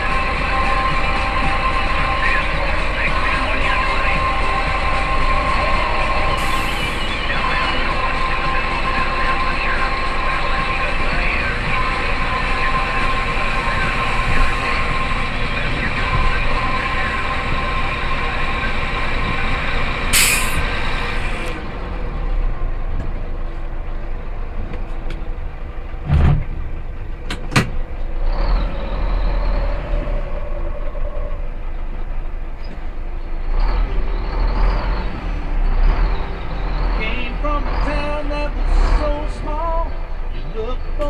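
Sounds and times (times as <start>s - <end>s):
dump truck diesel engine: 0.0s - 41.0s
air hiss: 6.4s - 7.2s, 20.1s - 21.5s.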